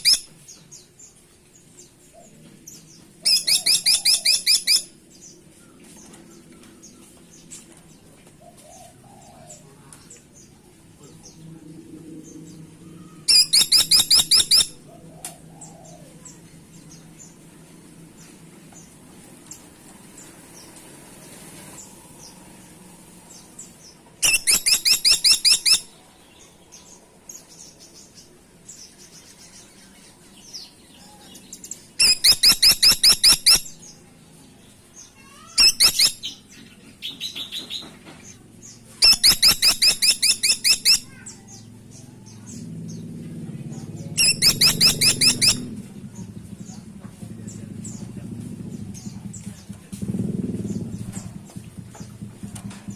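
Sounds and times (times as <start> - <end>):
woodpecker rattling call: 13.3 - 14.8, 24.2 - 25.8, 32.0 - 33.7, 35.2 - 36.4, 39.0 - 41.3, 44.2 - 45.7
faint chirps: 21.7 - 49.8.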